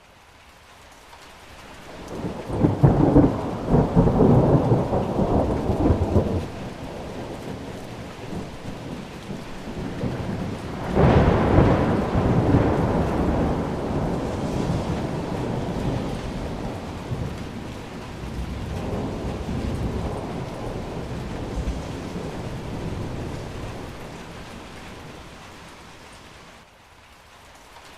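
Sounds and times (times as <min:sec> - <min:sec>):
heavy rain: 0:00.0 - 0:27.9
thunder rumbling: 0:01.9 - 0:26.6.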